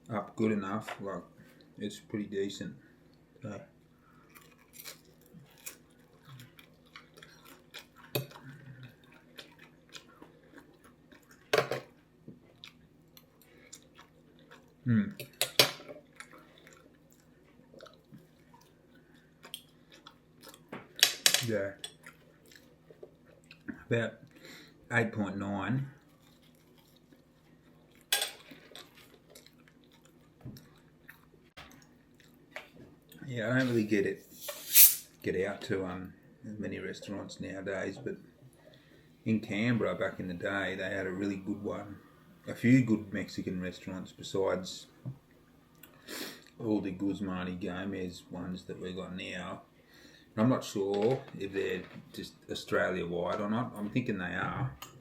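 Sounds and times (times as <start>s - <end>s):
person chewing food: 3.1s - 15.4s, 16.0s - 21.0s, 21.9s - 24.8s, 26.0s - 33.2s.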